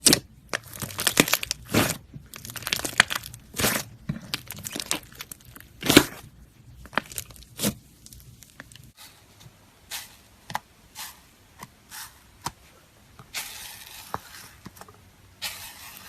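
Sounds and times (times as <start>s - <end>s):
slime squishing and popping: 0.0s - 8.9s.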